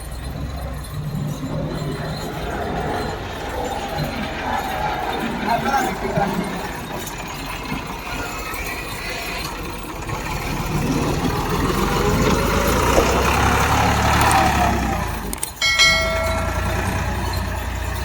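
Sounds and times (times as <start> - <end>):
tractor engine rumbling: 0.0 - 18.0.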